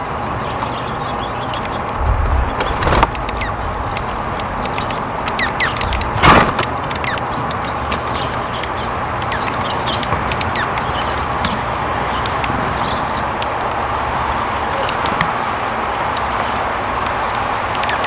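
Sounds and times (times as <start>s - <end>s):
small birds chirping: 0.0s - 13.3s
steady outdoor hiss: 0.0s - 17.8s
loud rush: 2.0s - 6.9s.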